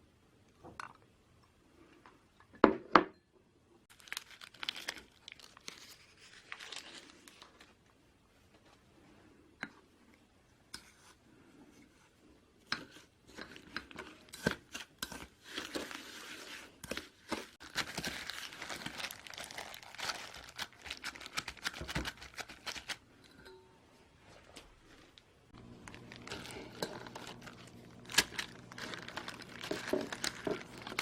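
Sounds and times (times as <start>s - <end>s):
packaging crinkling and tearing: 3.9s - 7.8s, 17.6s - 23.0s, 25.6s - 31.0s.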